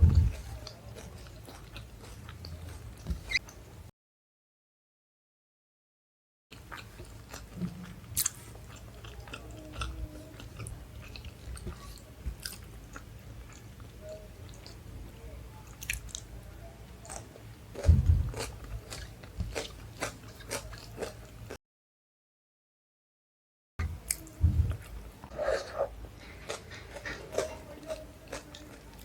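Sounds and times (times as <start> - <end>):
chewing and biting food: 0.0 - 3.5, 6.6 - 13.9, 17.0 - 21.6, 24.1 - 29.0.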